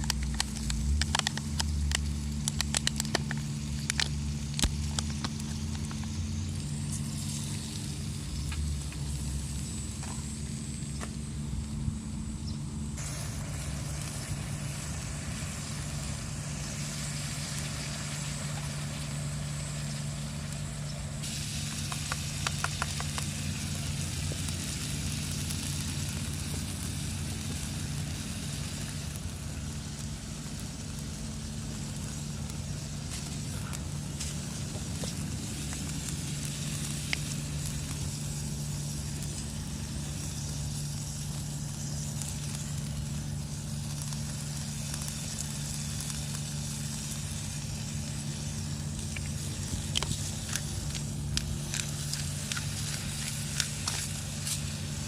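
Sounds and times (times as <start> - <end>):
low hum: 0.0 - 55.0
food sizzling in a frying pan: 13.0 - 55.0.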